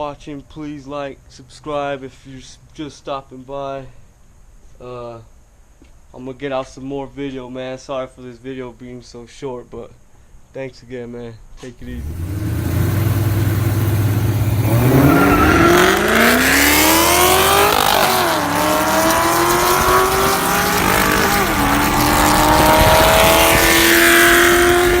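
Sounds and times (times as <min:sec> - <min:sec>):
car engine accelerating: 0:11.8 - 0:25.0.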